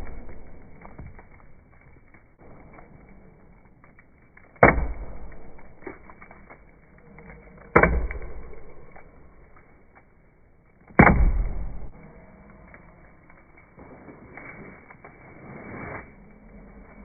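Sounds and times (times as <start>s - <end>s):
axe chopping tree trunk: 4.6s - 6.2s, 7.6s - 9.1s, 10.9s - 11.9s.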